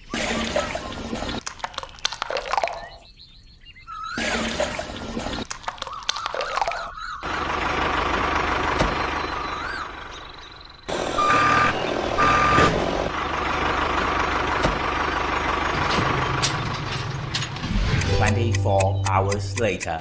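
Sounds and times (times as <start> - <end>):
vehicle engine running: 7.2 - 19.7
reversing beeps: 11.2 - 12.8.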